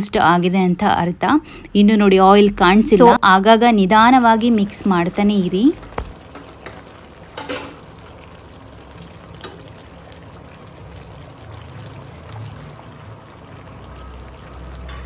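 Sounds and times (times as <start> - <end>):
food sizzling in a pan: 3.8 - 15.0.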